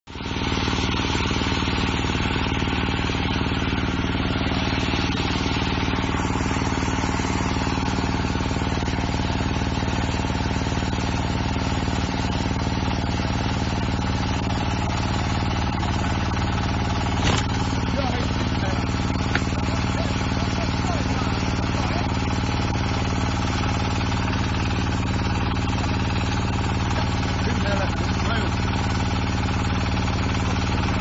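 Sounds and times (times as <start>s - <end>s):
engine running steadily: 0.0s - 31.0s.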